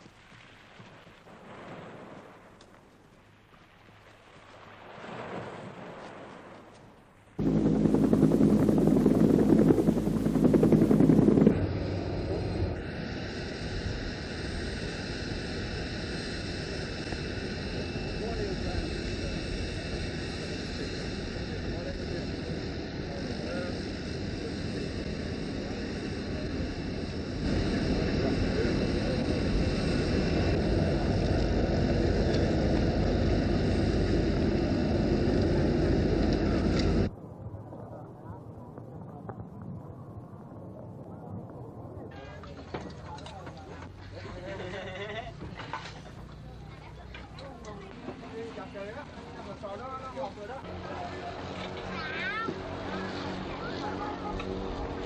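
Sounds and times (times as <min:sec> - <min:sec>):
engine drone: 0:07.4 - 0:37.1, 0:47.8 - 0:55.0
loud pulsing engine: 0:07.4 - 0:37.1, 0:50.6 - 0:55.0
high steady whine: 0:07.4 - 0:37.3, 0:46.2 - 0:55.0.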